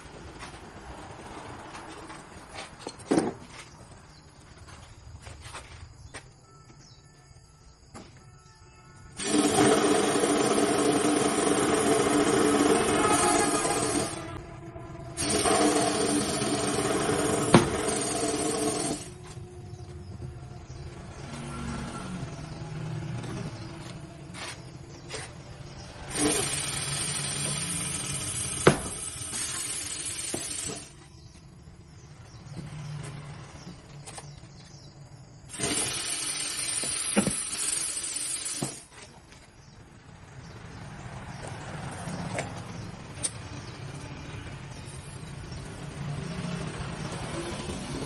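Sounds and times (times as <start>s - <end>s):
loud hissing: 9.2s - 14.4s, 26.0s - 31.0s, 35.5s - 38.9s.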